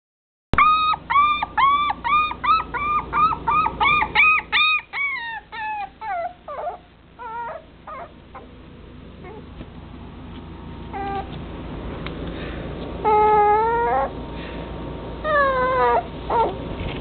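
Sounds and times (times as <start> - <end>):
puppy whining: 0.6 - 9.8, 10.7 - 11.5, 13.0 - 14.6, 15.2 - 17.0.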